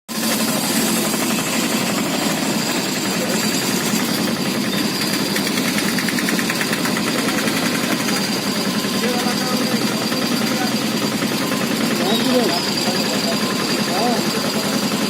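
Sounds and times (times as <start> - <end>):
engine running with rough knocking: 0.1 - 15.0
thin high whine: 7.8 - 15.0.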